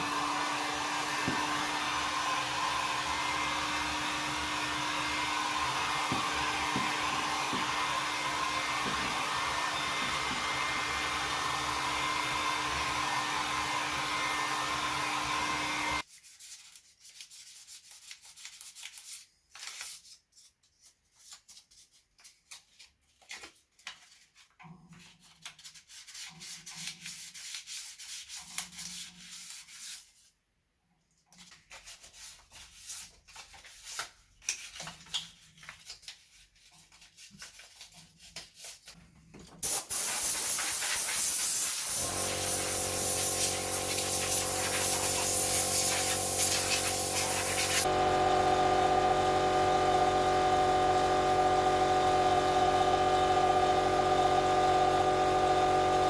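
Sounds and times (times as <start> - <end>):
small electric tool whirring: 0.0 - 16.0, 39.6 - 56.0
hand sanding strokes: 39.6 - 47.9.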